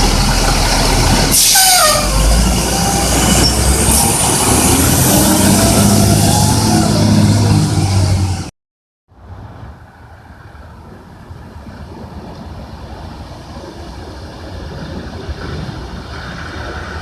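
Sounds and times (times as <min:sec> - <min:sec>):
low truck engine: 0:00.0 - 0:08.5.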